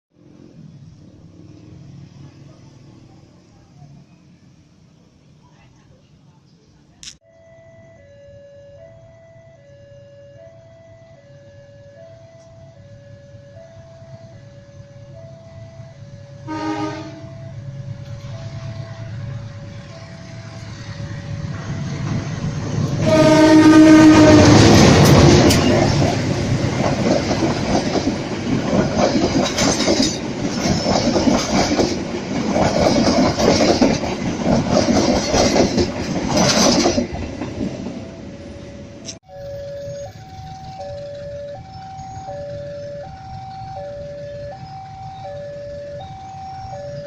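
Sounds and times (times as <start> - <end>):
train passing: 0.2 - 47.0
level-crossing two-tone alarm: 7.2 - 18.6, 38.0 - 47.0
train horn blast: 16.4 - 17.5, 23.0 - 25.8
train wheels clacking on rails: 21.5 - 38.2.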